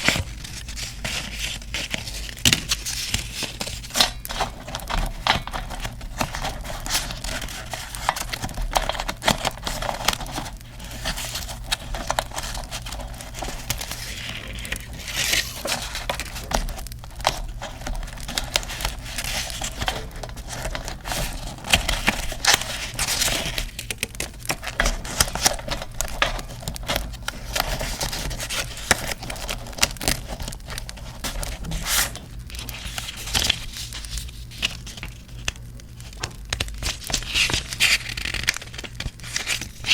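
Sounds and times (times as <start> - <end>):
paper crinkling and rustling: 0.0 - 39.9
paper tearing: 11.2 - 23.8.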